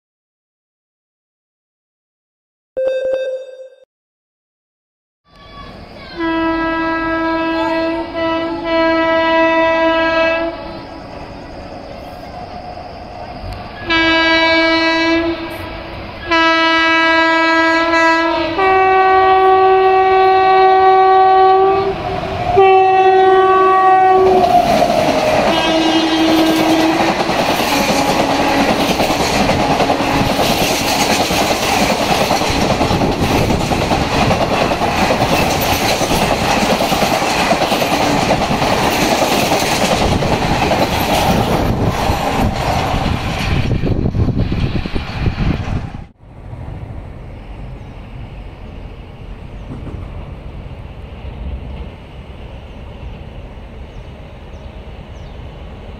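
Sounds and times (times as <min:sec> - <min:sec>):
locomotive horn blasts: 0:06.2 - 0:10.7, 0:13.8 - 0:24.6, 0:25.4 - 0:27.1
train wheels clattering over rail joints: 0:24.4 - 0:44.8.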